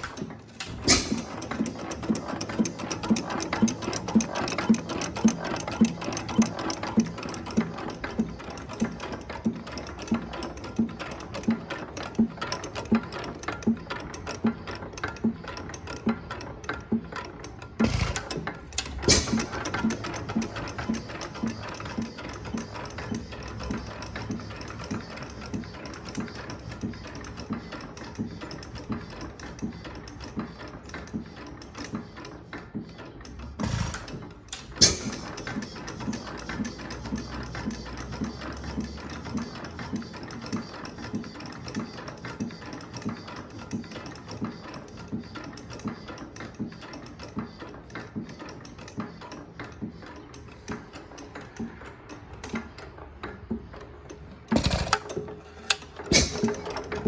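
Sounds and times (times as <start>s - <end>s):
engine valve gear clicking: 0.0s - 6.9s, 17.7s - 21.3s, 33.3s - 35.6s, 54.5s - 57.0s
loud engine bangs: 17.8s - 19.6s.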